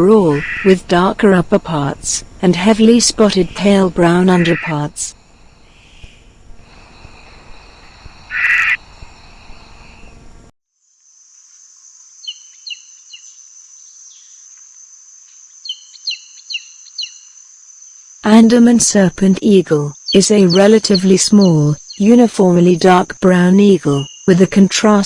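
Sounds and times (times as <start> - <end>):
crickets chirring: 2.5 - 25.0
high insect trill: 5.2 - 25.0
small bird chirping: 7.0 - 10.2, 12.2 - 14.5, 15.5 - 18.3, 19.9 - 24.4.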